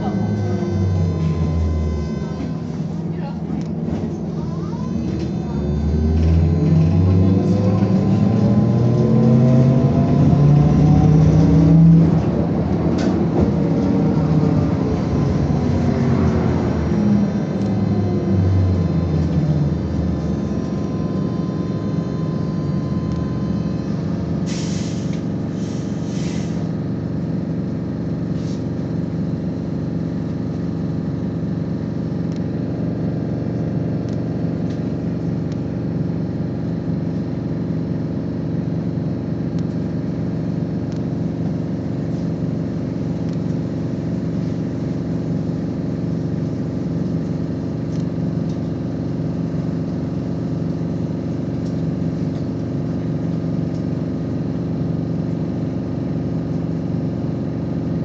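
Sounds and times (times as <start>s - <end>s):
trolleybus electric whine: 0.0s - 58.0s
air release hisses: 24.5s - 26.6s.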